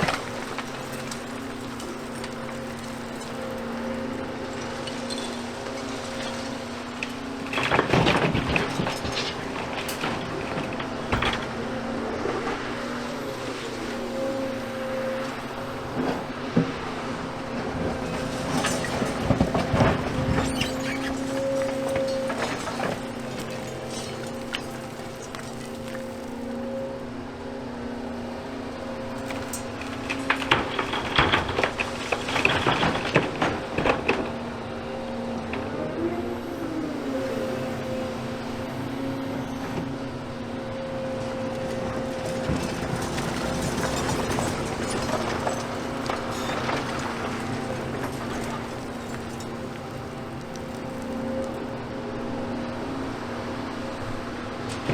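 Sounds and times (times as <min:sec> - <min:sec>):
rubble crashing: 0:00.0 - 0:16.2, 0:17.6 - 0:26.7, 0:29.1 - 0:34.6, 0:41.6 - 0:51.8
excavator engine running: 0:00.0 - 0:54.9.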